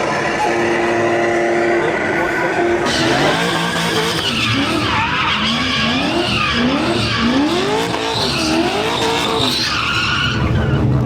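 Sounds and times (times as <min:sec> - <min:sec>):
car engine revving: 0:00.0 - 0:11.0
tyres squealing: 0:02.8 - 0:10.8.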